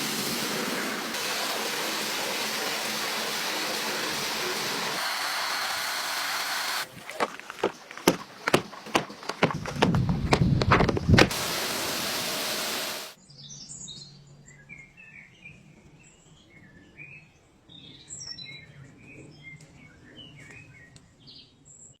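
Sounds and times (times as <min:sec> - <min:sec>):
pressure washer spraying: 0:00.0 - 0:07.0, 0:10.8 - 0:13.2
birds chirping: 0:06.6 - 0:13.2
sharp clicks and knocks: 0:07.1 - 0:11.4.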